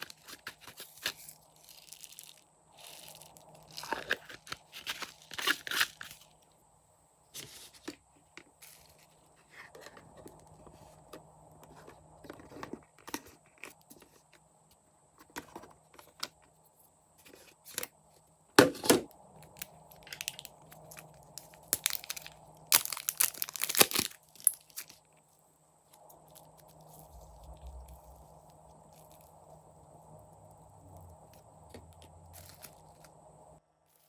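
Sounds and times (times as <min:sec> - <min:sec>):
slime crackling and popping: 0:21.4 - 0:24.8.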